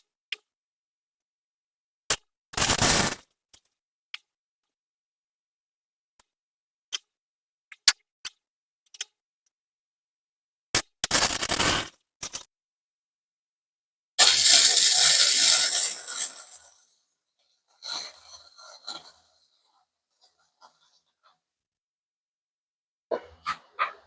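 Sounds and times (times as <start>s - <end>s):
welder arc crackling: 14.2s - 17.0s.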